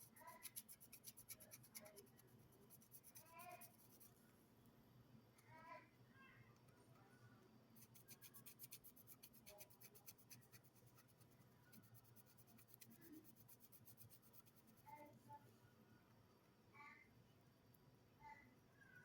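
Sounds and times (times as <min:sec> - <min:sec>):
painting tool scratching paper: 0:00.0 - 0:04.1, 0:07.8 - 0:14.8.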